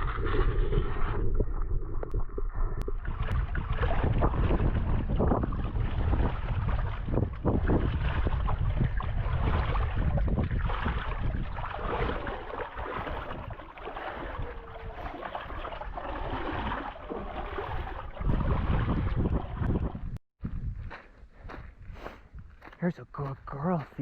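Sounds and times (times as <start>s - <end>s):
wind buffeting microphone: 0.0s - 22.8s
hiker scuffing and crackling: 20.7s - 24.0s.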